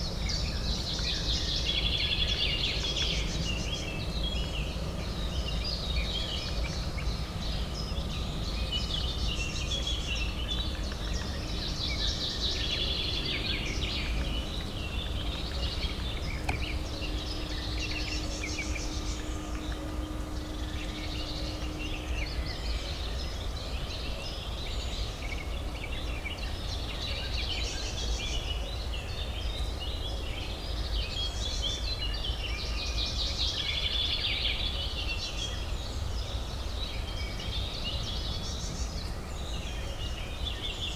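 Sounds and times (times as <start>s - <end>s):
faint steady drone: 0.0s - 28.6s
distant city traffic hum: 0.0s - 33.5s.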